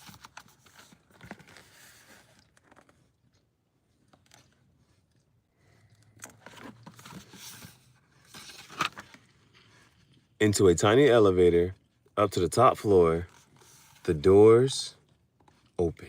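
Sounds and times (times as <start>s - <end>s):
paper rustling and crinkling: 0.0s - 3.1s, 6.4s - 10.1s.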